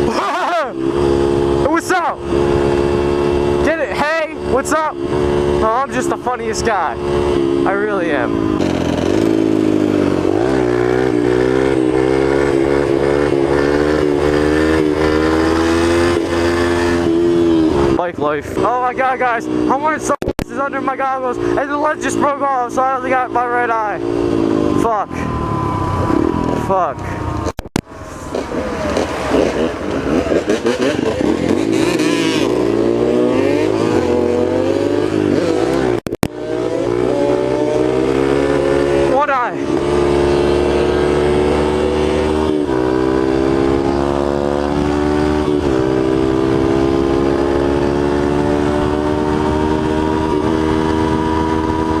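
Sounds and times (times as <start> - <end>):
dirt bike engine at high revs: 0.0 - 52.0
wind noise: 39.6 - 52.0.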